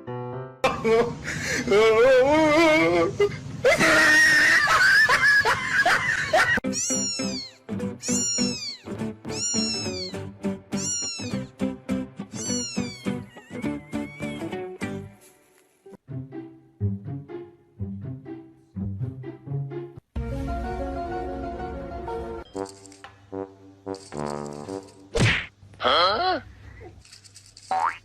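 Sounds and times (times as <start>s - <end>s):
cat yowling: 6.6s - 10.2s, 10.8s - 11.5s, 12.4s - 14.6s.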